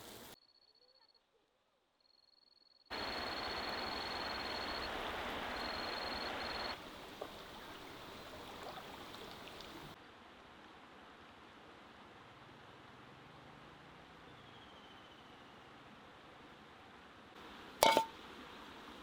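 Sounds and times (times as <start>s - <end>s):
stream running water: 2.9s - 10.0s, 17.4s - 19.0s.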